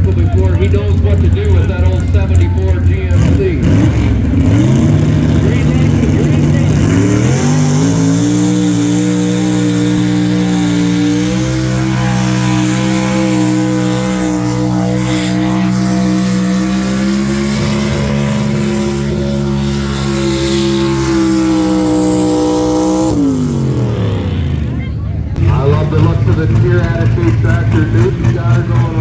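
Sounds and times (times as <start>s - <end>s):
truck engine at high revs: 0.0s - 29.0s.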